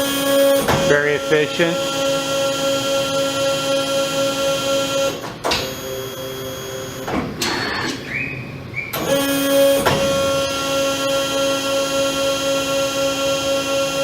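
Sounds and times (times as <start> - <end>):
hydraulic pumps humming: 0.0 - 13.0
rising machine whine: 5.6 - 7.2.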